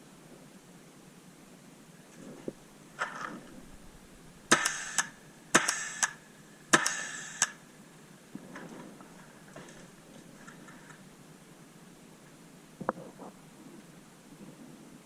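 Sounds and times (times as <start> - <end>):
faint rustle: 0.0 - 4.5, 7.8 - 15.0
sharp quiet click: 4.5 - 6.2, 6.8 - 7.6
paintball marker firing: 4.5 - 7.6.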